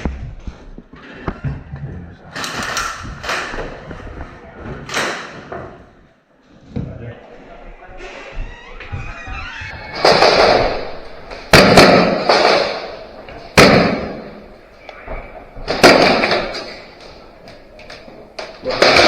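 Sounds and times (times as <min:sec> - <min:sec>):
loud sharp bangs echoing: 0:09.9 - 0:14.5, 0:15.7 - 0:16.6.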